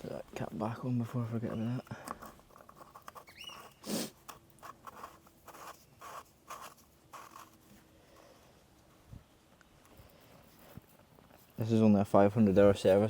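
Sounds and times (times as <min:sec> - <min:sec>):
filler cap scraping: 0:00.0 - 0:08.3
filler cap squeak: 0:01.1 - 0:04.2.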